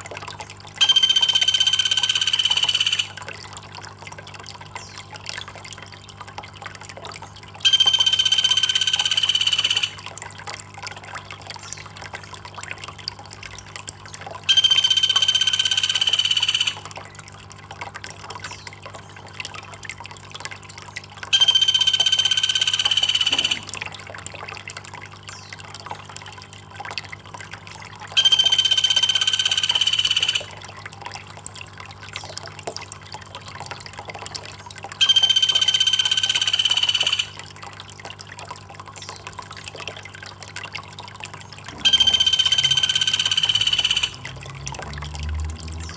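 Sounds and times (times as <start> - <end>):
water trickling: 0.0 - 45.9
high-pitched bird call: 0.8 - 3.2, 7.6 - 10.0, 14.5 - 16.9, 21.3 - 23.8, 28.2 - 30.6, 35.0 - 37.5, 41.7 - 44.3.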